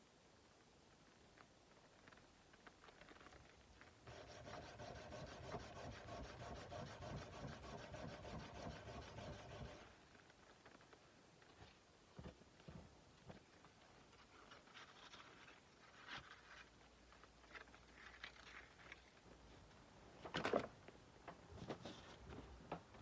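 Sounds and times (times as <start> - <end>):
blade being sanded by hand: 4.1 - 9.9.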